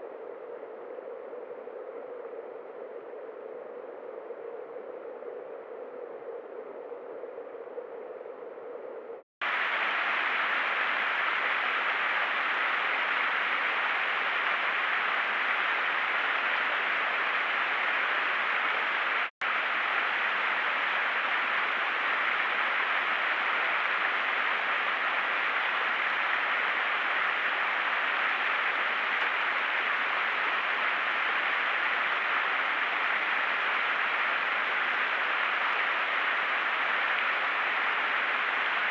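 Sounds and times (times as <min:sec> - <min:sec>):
microphone hiss: 0:08.6 - 0:38.9.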